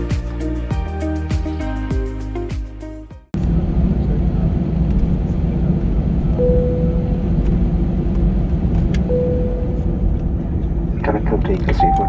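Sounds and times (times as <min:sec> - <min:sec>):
airplane cabin engine rumble: 0:03.4 - 0:12.0.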